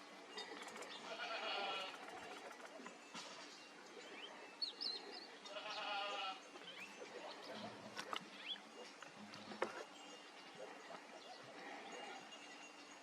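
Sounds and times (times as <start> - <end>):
birds chirping: 0.0 - 13.0
animal bleating: 1.0 - 2.0, 5.5 - 6.5.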